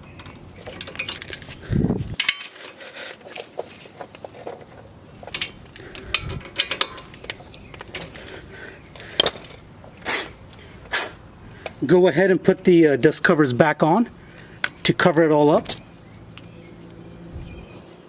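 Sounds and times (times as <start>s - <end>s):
hand tools clinking on metal: 0.1s - 1.6s, 2.2s - 9.6s.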